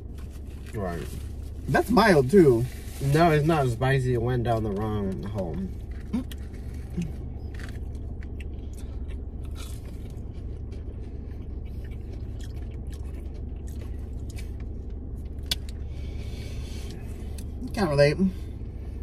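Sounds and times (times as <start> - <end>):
steady low hum: 0.0 - 19.0
chewing and crunching food: 4.4 - 17.8.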